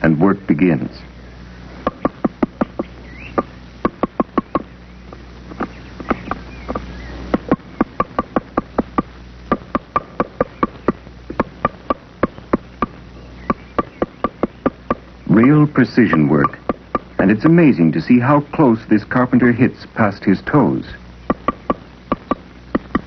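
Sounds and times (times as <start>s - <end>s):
woodpecker pecking wood: 1.8s - 17.4s, 21.2s - 23.0s.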